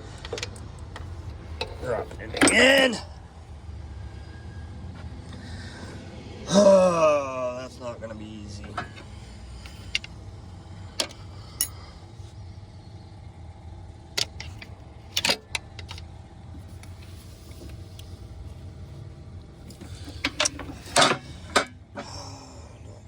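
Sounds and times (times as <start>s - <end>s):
steady low hum: 0.0s - 23.0s
wrench clinking against metal: 9.6s - 10.2s, 11.0s - 11.9s, 14.2s - 16.0s, 19.7s - 21.7s.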